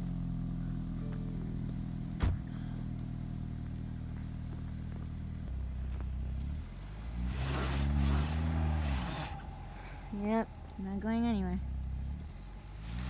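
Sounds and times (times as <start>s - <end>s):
car engine revving: 0.0s - 13.0s
tyres spinning in snow: 3.6s - 13.0s.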